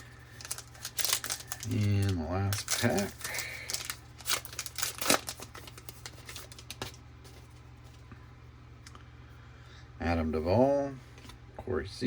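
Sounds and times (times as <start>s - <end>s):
card pack wrapper tearing: 0.0s - 7.0s.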